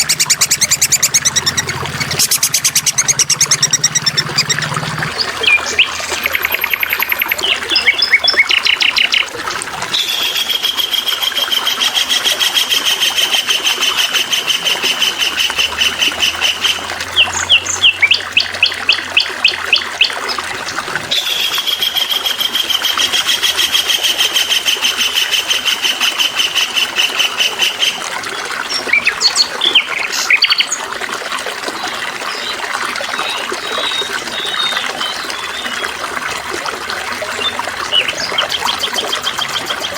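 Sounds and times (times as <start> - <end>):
songbird singing: 0.0 - 9.4, 16.4 - 22.1, 28.4 - 30.9, 31.8 - 35.9, 37.2 - 39.9
water trickling: 0.0 - 39.9.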